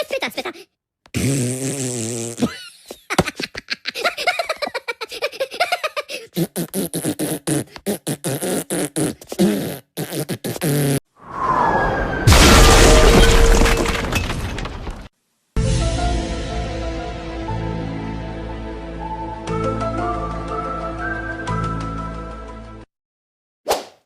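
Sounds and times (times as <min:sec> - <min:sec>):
buzzy fart-like noise: 0:01.1 - 0:02.5, 0:06.4 - 0:11.0
stuttering beatbox vocal sounds: 0:06.3 - 0:11.0.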